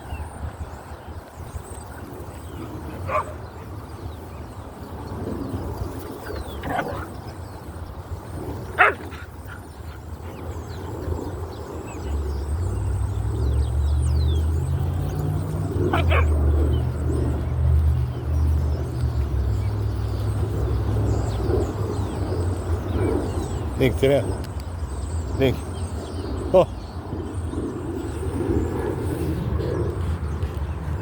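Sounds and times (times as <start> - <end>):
wind buffeting microphone: 0.0 - 31.0
small dog barking: 3.1 - 3.4, 8.8 - 9.1, 15.9 - 16.4.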